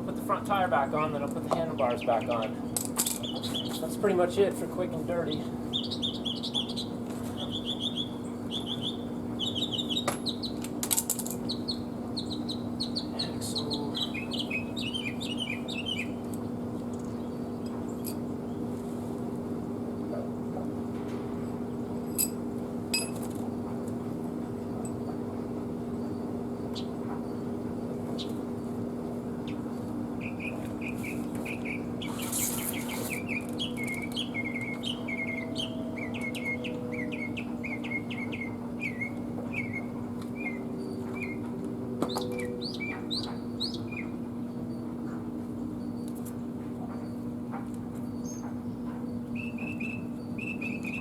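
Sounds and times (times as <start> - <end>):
steady low hum: 0.0 - 51.0
small bird chirping: 3.2 - 3.9, 5.3 - 10.6, 11.4 - 16.2, 30.2 - 41.5, 42.1 - 44.9, 49.3 - 51.0.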